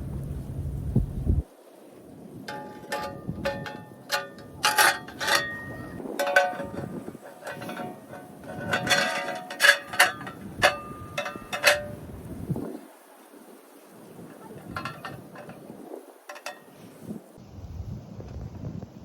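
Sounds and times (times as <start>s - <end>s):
metal pieces clinking: 2.5s - 12.0s.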